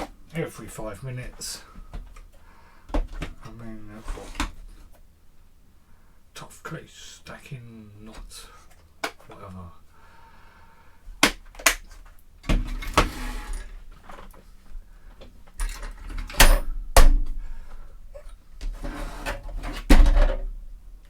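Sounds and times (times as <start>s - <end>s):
plastic cases clicking and knocking: 1.8s - 3.5s.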